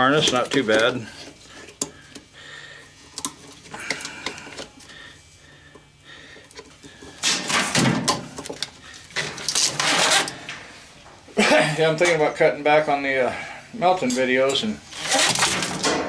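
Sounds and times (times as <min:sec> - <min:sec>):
wires and parts rattling: 0:00.0 - 0:02.3, 0:06.4 - 0:11.2, 0:14.0 - 0:16.0
loud scraping: 0:09.7 - 0:10.4.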